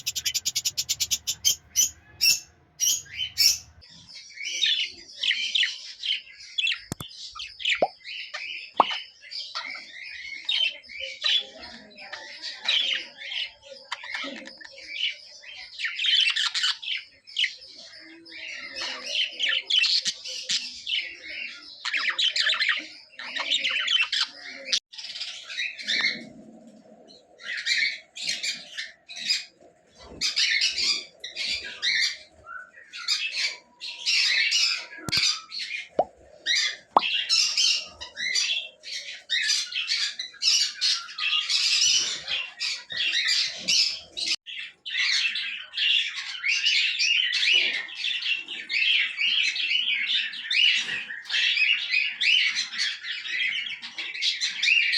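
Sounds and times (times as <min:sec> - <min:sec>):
budgerigars chattering and chirping: 0:00.0 - 0:03.8.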